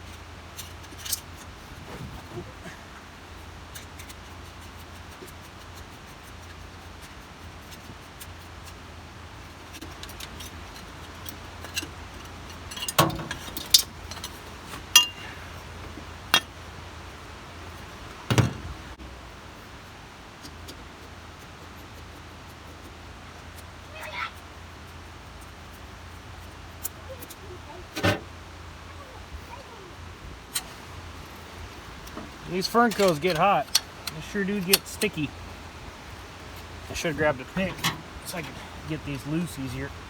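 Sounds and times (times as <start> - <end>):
metal tools clinking and knocking: 9.8 - 15.4, 18.3 - 19.0, 32.2 - 35.4, 36.4 - 39.8.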